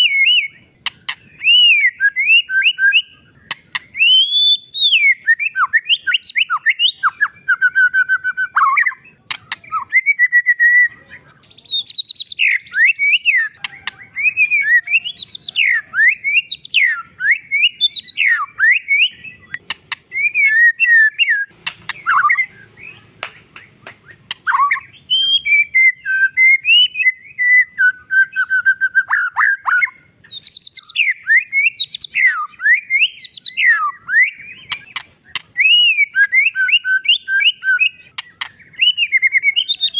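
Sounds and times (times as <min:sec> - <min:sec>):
bird singing whistled phrases: 0:00.0 - 0:39.9
sharp clicks: 0:00.8 - 0:01.3, 0:03.5 - 0:04.0, 0:09.3 - 0:09.7, 0:19.5 - 0:20.1, 0:21.5 - 0:22.2, 0:23.2 - 0:24.6, 0:34.7 - 0:35.6, 0:38.2 - 0:38.6.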